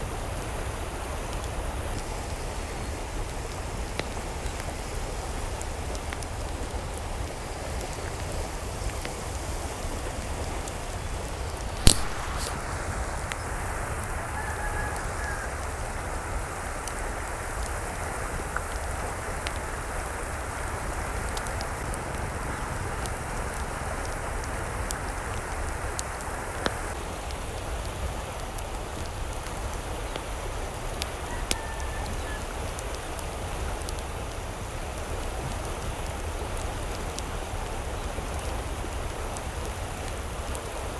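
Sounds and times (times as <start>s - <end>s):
rain pattering: 0.0s - 40.9s
sharp click: 11.8s - 12.6s.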